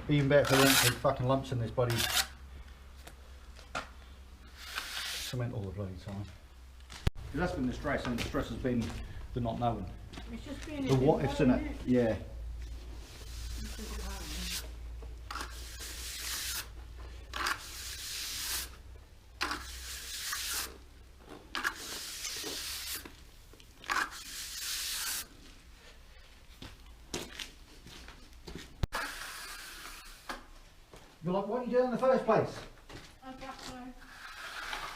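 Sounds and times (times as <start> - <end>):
trowel scraping cement on wall: 0.3 - 1.1, 1.8 - 2.4, 4.5 - 5.4, 13.2 - 14.7, 15.3 - 18.8, 19.4 - 20.8, 21.5 - 23.2, 23.8 - 25.3, 28.9 - 30.5, 33.9 - 34.9.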